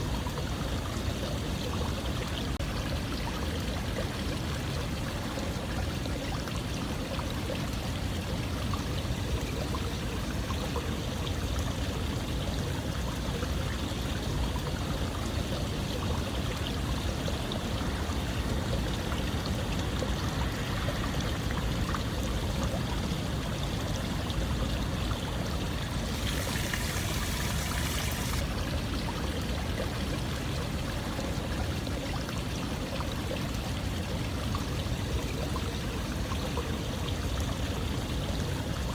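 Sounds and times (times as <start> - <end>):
running water: 0.0 - 38.9
hissy water splash: 25.7 - 28.5.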